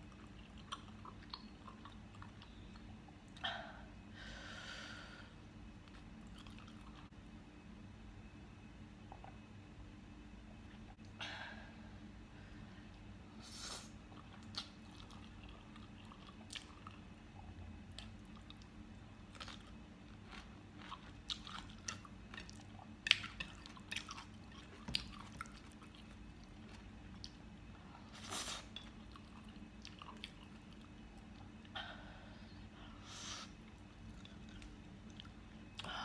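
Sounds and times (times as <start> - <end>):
person chewing noodles: 0.0 - 3.4, 5.7 - 7.1, 14.1 - 31.7, 33.5 - 35.9.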